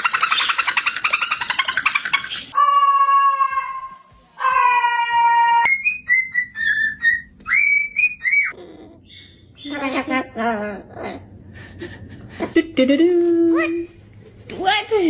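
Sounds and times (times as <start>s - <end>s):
parrot whistling and chirping: 0.0s - 2.6s, 5.6s - 9.8s.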